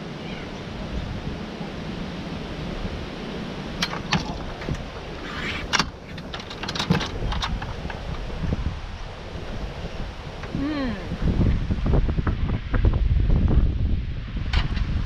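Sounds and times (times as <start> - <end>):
wind rumble: 0.0 - 15.0
sharp clicks and rattles: 5.7 - 8.2.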